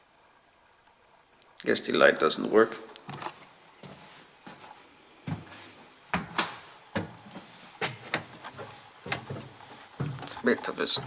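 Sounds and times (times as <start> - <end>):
footsteps on stairs: 3.0 - 11.0.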